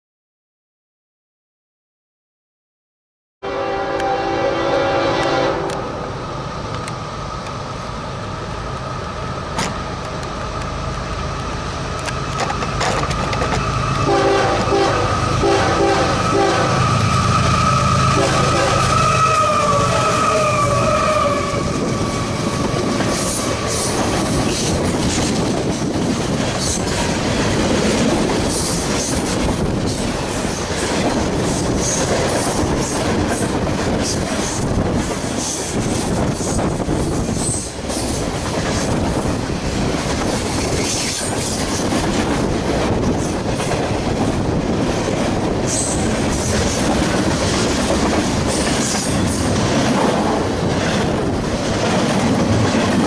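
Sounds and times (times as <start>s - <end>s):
train horn: 3.4s - 6.0s, 14.0s - 22.1s
freight train rumbling: 3.4s - 53.0s
wheel clatter over rail joints: 12.0s - 13.8s
high wheel squeals: 16.1s - 22.7s.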